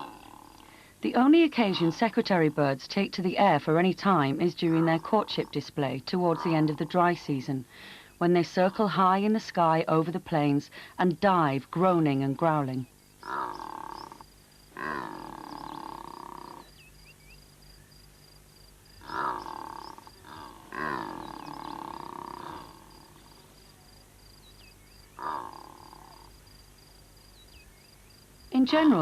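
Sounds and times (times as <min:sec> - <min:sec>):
birds groaning and growling calls: 0:00.0 - 0:00.8, 0:03.8 - 0:09.2, 0:12.8 - 0:18.0, 0:19.0 - 0:29.0.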